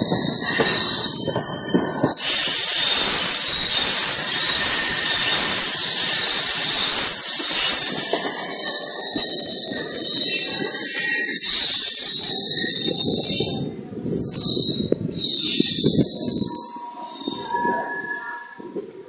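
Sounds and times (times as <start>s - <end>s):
train rushing noise: 0.0s - 19.0s
train wheels squealing: 0.0s - 19.0s.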